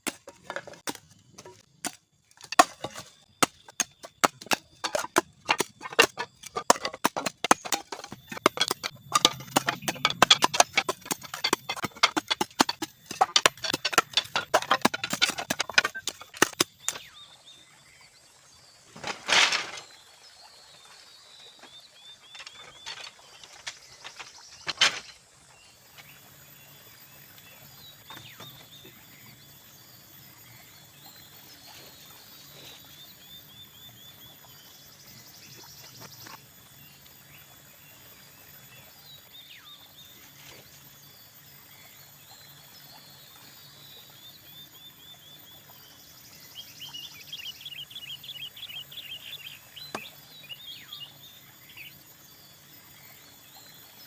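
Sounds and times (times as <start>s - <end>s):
sharp knocks: 0.0s - 17.0s
birds chirping trills: 0.0s - 54.0s.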